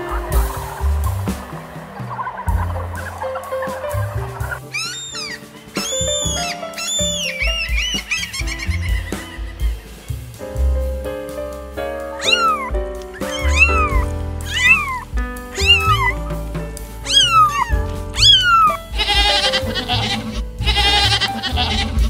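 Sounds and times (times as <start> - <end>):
background music: 0.0 - 22.0
kittens meowing: 4.7 - 9.8, 12.2 - 15.0, 15.6 - 16.2, 17.0 - 22.0
goat bleating: 17.1 - 22.0.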